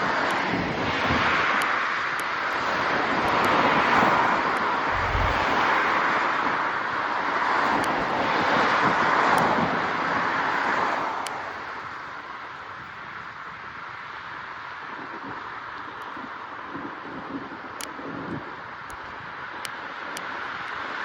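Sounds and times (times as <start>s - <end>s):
wind and road noise: 0.0s - 21.0s
low thump: 4.9s - 5.6s.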